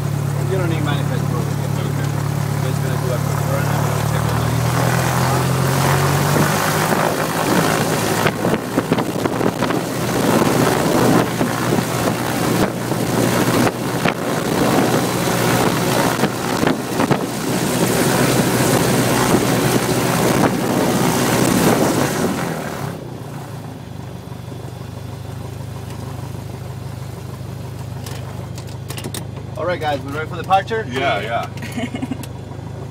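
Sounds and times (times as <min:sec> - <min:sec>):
piston airplane engine and propeller: 0:00.0 - 0:32.9.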